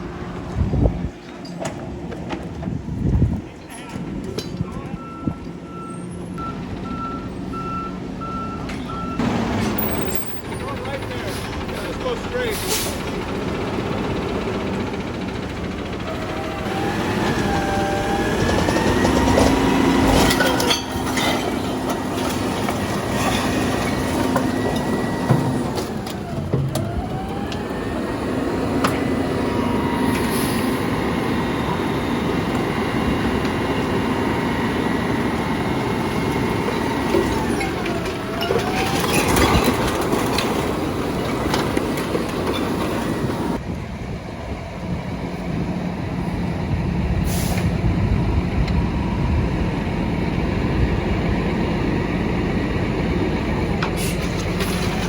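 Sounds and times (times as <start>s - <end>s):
truck machinery whining: 0.0s - 55.0s
metallic clanks: 19.1s - 25.6s.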